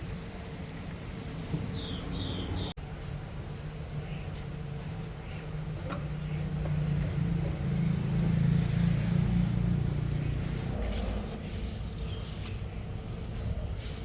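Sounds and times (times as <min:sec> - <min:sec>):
vehicle engine droning: 0:00.0 - 0:14.0.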